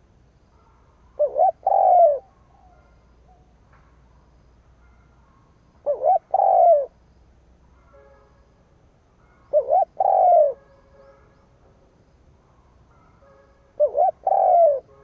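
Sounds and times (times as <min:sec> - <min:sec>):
dove cooing: 0:01.1 - 0:03.4, 0:05.8 - 0:07.0, 0:09.5 - 0:10.6, 0:13.8 - 0:14.9.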